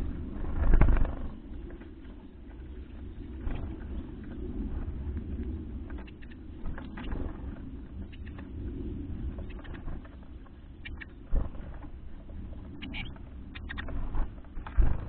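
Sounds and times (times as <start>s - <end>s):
steady low rumble: 0.0s - 15.0s
small birds chirping: 5.8s - 15.0s.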